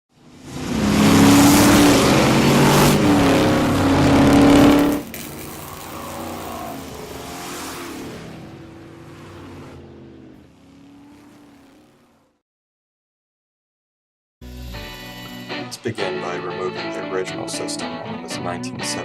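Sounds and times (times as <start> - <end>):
car engine revving: 0.1 - 12.4.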